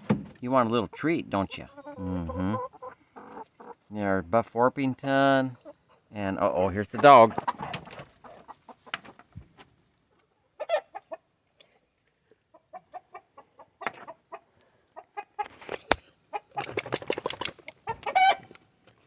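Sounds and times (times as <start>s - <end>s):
chickens clucking: 0.6s - 4.2s, 5.4s - 9.4s, 10.5s - 11.4s, 12.4s - 15.6s, 16.3s - 18.5s.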